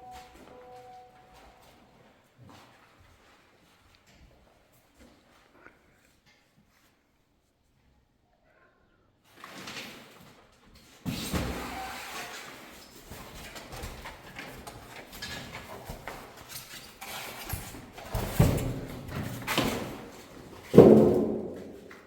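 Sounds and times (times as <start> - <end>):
hard objects knocking and clattering: 20.6 - 22.0.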